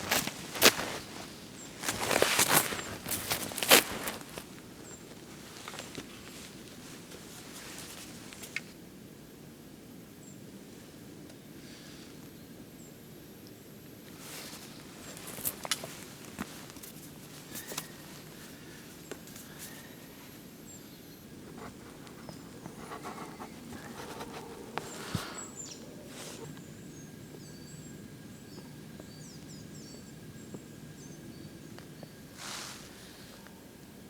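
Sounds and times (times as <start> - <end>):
rustles and clicks: 0.0 - 8.7, 14.1 - 20.3
small bird chirping: 14.2 - 33.7.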